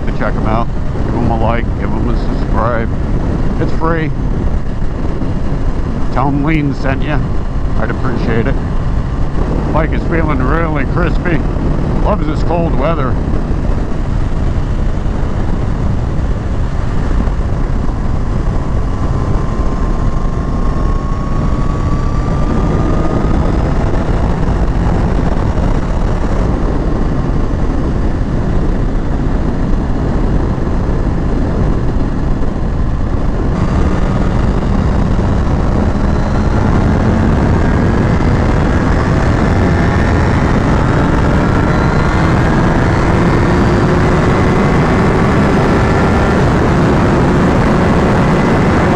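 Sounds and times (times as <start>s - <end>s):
motorcycle engine accelerating: 0.0s - 48.9s
wind rush over microphone: 0.0s - 48.9s.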